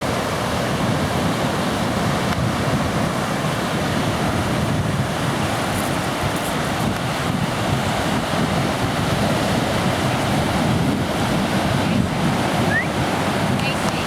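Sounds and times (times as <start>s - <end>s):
ocean surf washing in: 0.0s - 14.0s
wind buffeting microphone: 0.0s - 14.0s.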